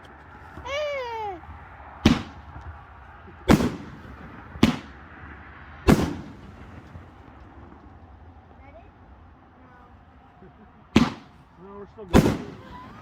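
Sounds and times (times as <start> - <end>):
loud firework bangs: 1.5 - 8.1, 10.8 - 13.0.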